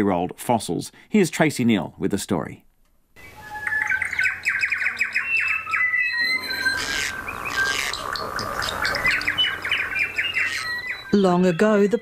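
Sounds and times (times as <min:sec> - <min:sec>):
birds chattering: 0:03.2 - 0:12.0
harsh bird calls: 0:03.2 - 0:12.0.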